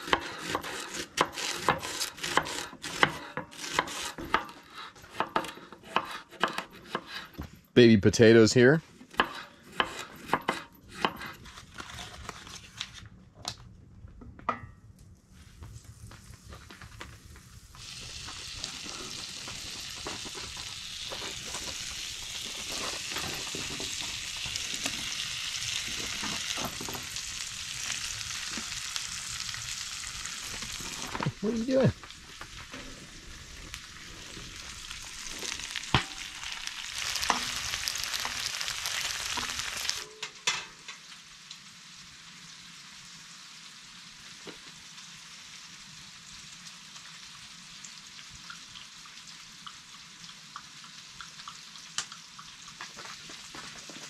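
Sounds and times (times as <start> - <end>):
onions sizzling in skillet: 0.0 - 7.2, 15.3 - 54.0
stirring in skillet: 17.8 - 40.1.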